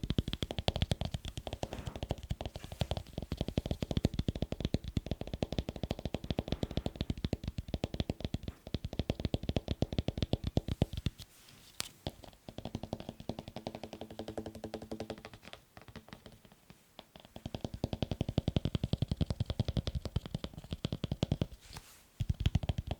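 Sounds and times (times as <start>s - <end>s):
fingers tapping on hard object: 0.0s - 11.2s, 12.0s - 21.6s, 22.2s - 22.9s.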